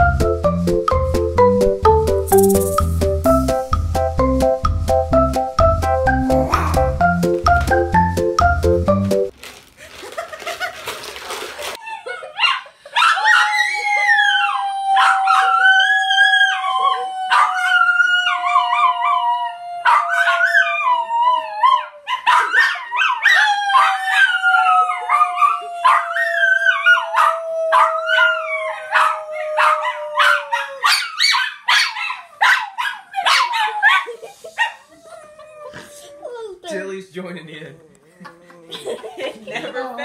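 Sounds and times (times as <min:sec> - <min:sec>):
woman laughing: 0:10.0 - 0:11.0, 0:11.8 - 0:13.0, 0:33.8 - 0:36.1, 0:38.0 - 0:40.0
small dog howling: 0:13.0 - 0:34.1.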